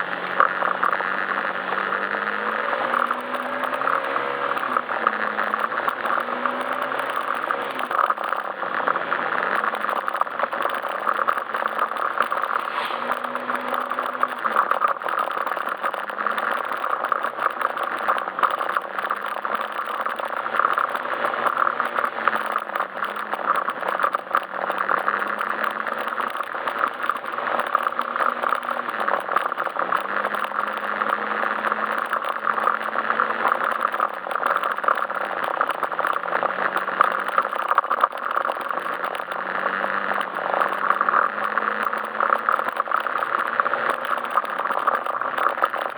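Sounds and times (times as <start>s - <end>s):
road and wind noise: 0.0s - 45.9s
scooter engine running: 0.0s - 45.9s.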